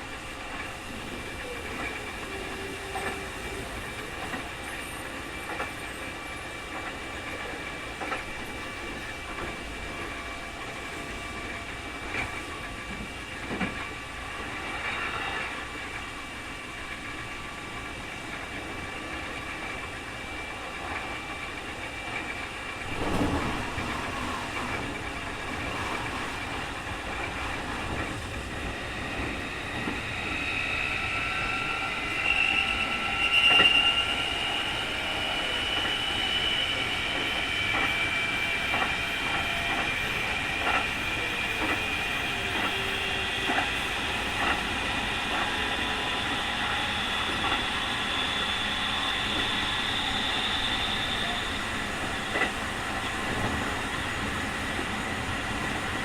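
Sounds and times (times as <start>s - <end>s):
train wheels clicking over rail joints: 34.4s - 51.4s.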